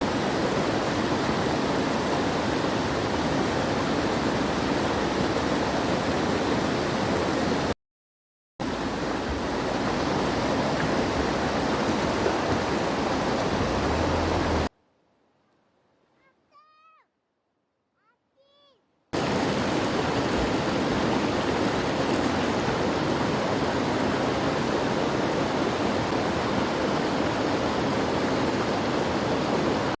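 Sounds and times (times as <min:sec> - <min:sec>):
rushing water: 0:00.0 - 0:07.8, 0:08.6 - 0:14.7, 0:19.2 - 0:30.0.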